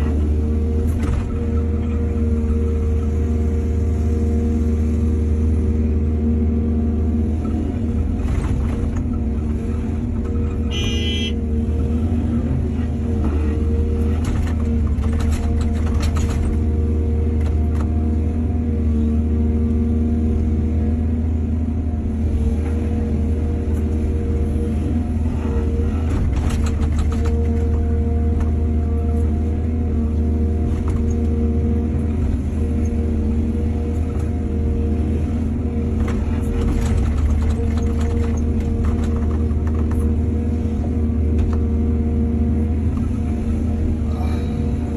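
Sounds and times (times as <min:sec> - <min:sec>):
excavator diesel engine running: 0:00.0 - 0:44.9
machine clanking and scraping: 0:36.0 - 0:40.1.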